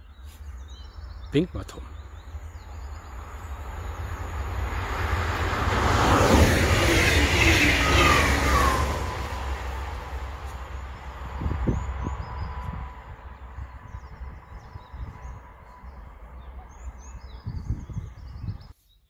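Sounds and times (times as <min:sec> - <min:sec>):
train passing at speed: 0:00.6 - 0:18.3
falling whine: 0:02.4 - 0:16.6.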